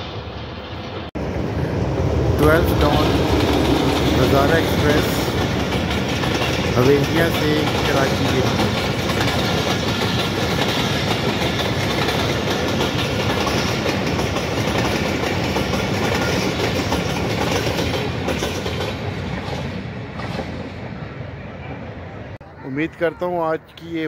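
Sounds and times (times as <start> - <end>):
train wheels clattering over rail joints: 2.8 - 20.7.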